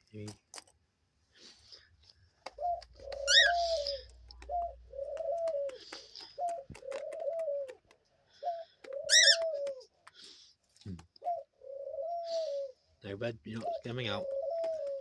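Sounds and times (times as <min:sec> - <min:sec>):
clicks and scratches in cage: 0:02.3 - 0:08.0
dove cooing: 0:02.4 - 0:10.3, 0:11.2 - 0:15.0.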